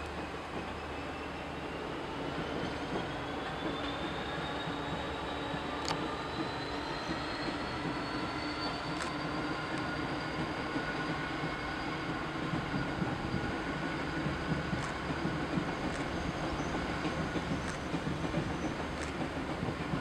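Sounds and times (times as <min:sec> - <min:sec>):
train wheels rumbling on bridge: 0:00.0 - 0:20.0
sharp clicks: 0:17.6 - 0:18.0, 0:19.0 - 0:19.3.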